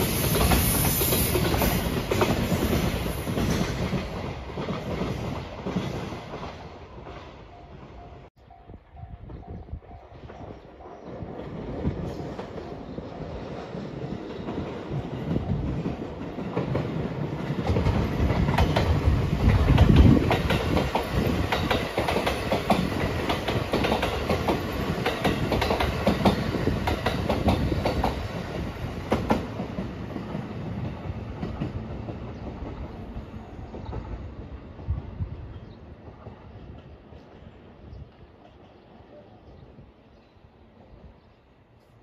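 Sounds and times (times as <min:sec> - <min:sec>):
train wheels clattering: 0:11.3 - 0:32.9.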